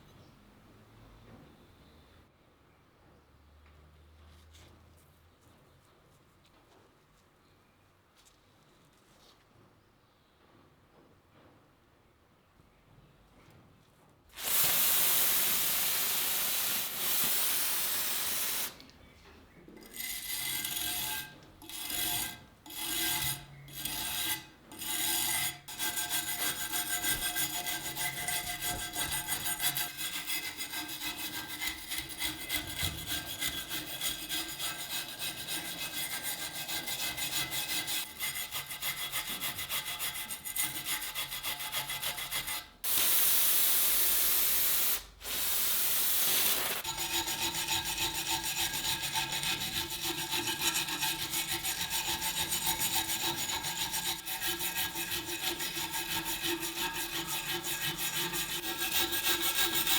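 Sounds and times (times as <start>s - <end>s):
abrasive scraping on steel knife: 19.8s - 42.6s, 46.5s - 59.9s.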